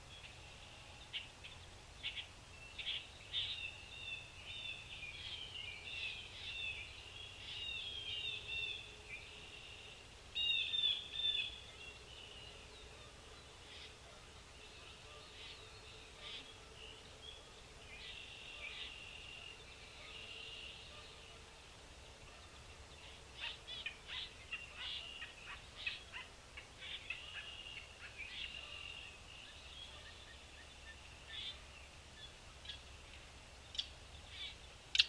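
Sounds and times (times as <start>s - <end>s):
small birds chirping: 22.0s - 35.0s.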